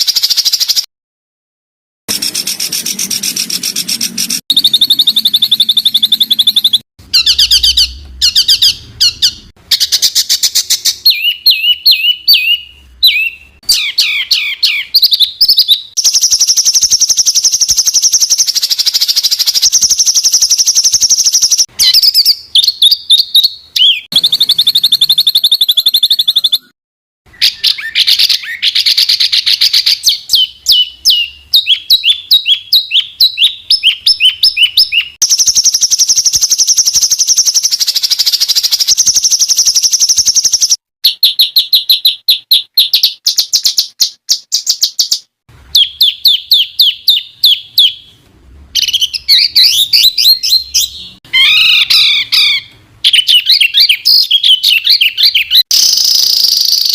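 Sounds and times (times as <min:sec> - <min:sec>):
songbirds singing trills: 0:02.1 - 0:48.1, 0:48.8 - 0:56.9.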